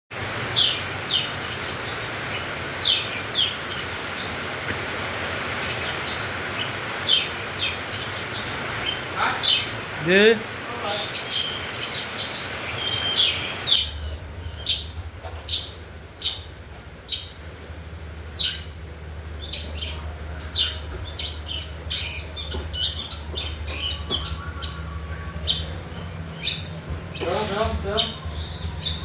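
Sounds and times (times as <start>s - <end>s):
bird giving harsh high calls: 22.0s - 29.0s.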